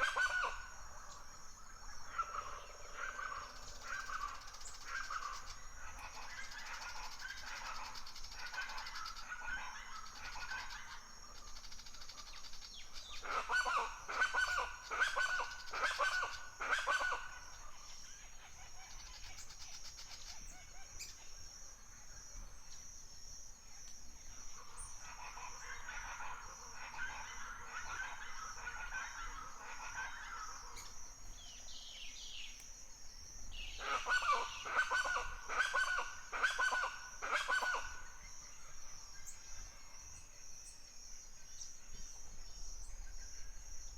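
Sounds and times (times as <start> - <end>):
birds chattering calls: 33.5 - 38.2.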